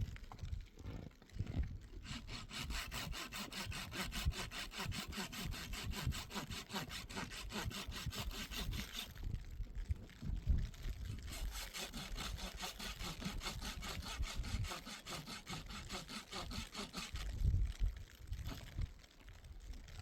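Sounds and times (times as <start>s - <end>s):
saw rasping strokes: 2.0s - 9.2s, 11.1s - 17.5s.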